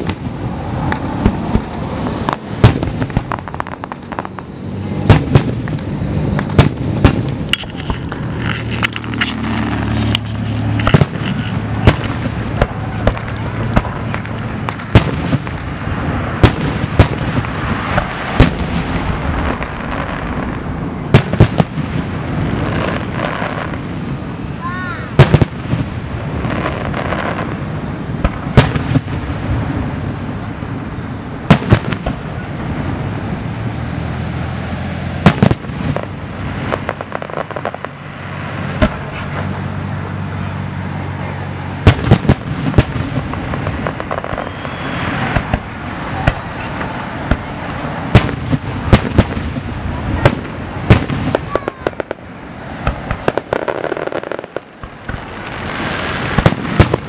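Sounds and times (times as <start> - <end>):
firework shells bursting: 0.0 - 22.1
steady background noise: 0.0 - 57.0.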